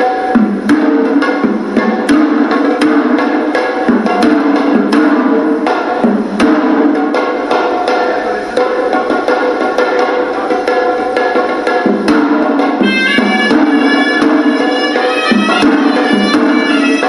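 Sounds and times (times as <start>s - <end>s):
drums beaten quickly: 0.0s - 17.0s
reedy shawm melody: 7.1s - 17.0s.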